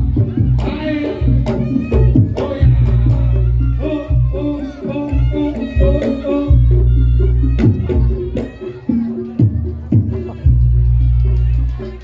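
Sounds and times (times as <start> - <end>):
drum and percussion strikes: 0.0 - 4.2, 4.8 - 12.0.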